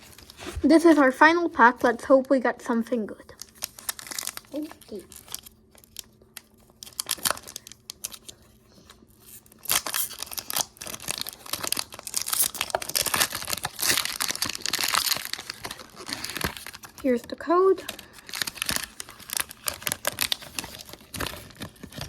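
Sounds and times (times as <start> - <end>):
foil wrapper tearing and crinkling: 3.4 - 8.4, 9.1 - 17.2, 17.8 - 22.0.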